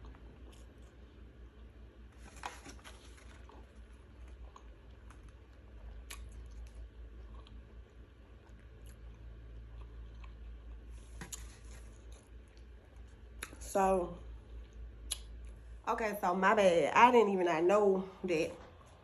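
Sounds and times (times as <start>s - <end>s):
person chewing food: 0.0s - 13.6s
low steady hum: 0.0s - 19.0s.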